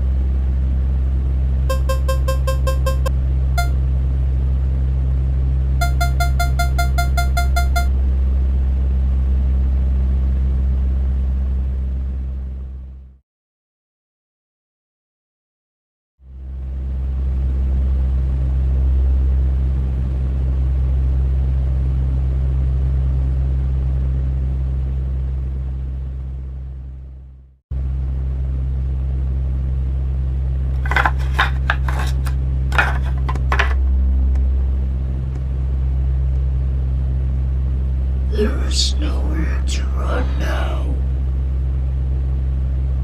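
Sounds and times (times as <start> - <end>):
low droning hum: 0.0 - 8.7, 30.5 - 43.0.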